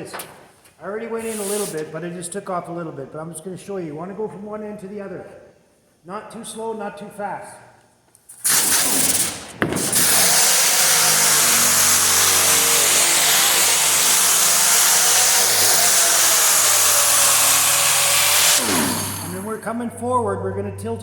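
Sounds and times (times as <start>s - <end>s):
power sander on metal: 8.5s - 19.8s.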